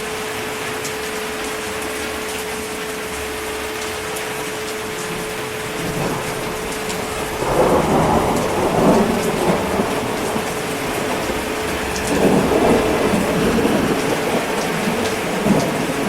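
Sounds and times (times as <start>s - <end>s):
heavy rain hissing: 0.0s - 16.0s
thunder rumbling: 4.9s - 16.0s.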